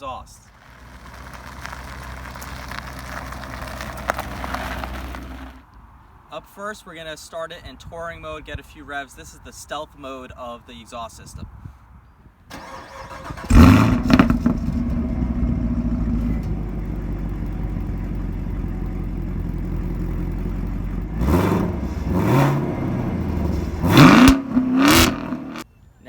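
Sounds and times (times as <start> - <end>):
car engine starting and idling: 0.5 - 5.6, 12.5 - 25.6
car engine revving: 0.6 - 5.6, 12.6 - 25.6.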